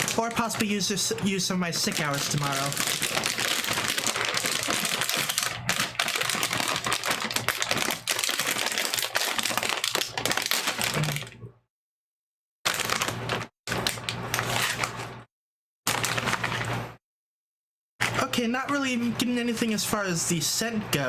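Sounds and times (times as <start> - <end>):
plastic snack bag crinkling: 0.0 - 11.4, 12.7 - 15.1, 15.9 - 16.6.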